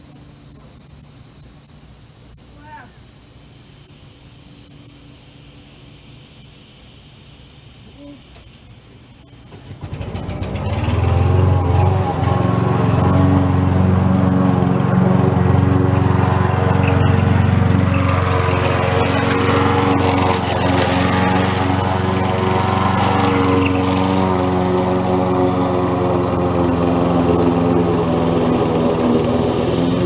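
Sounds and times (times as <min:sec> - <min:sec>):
petrol lawn mower engine: 0:00.0 - 0:01.1, 0:08.4 - 0:30.0.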